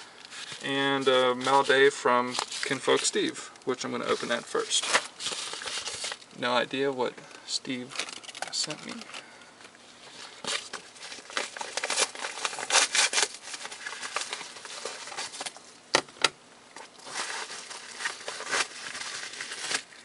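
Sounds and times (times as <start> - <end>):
packaging crinkling and tearing: 0.2 - 3.4, 4.0 - 6.3, 7.8 - 9.2, 10.1 - 15.7, 16.8 - 20.0.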